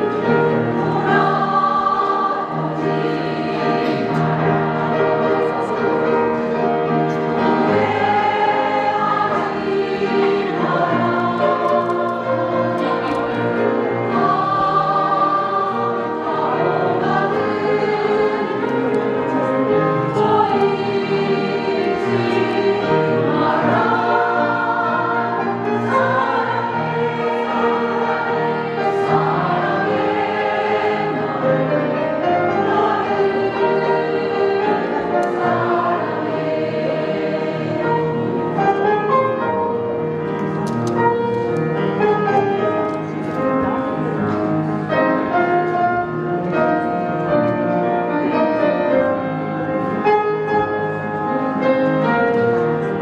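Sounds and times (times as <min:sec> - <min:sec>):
women singing in harmony: 0:00.0 - 0:06.4, 0:07.3 - 0:38.9.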